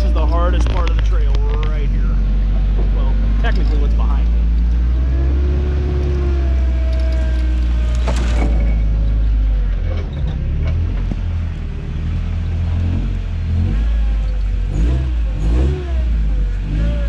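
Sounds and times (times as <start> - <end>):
truck engine rumbling: 0.0 - 17.0
short squeaks: 3.5 - 9.2.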